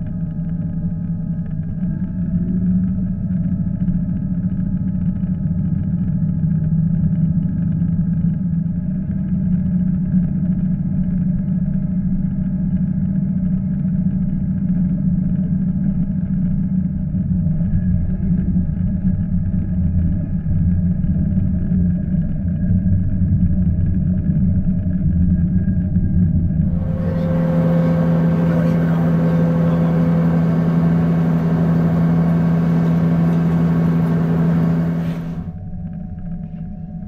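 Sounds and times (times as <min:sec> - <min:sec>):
faint steady whine: 0:21.9 - 0:37.0
train interior rumble: 0:26.5 - 0:36.7.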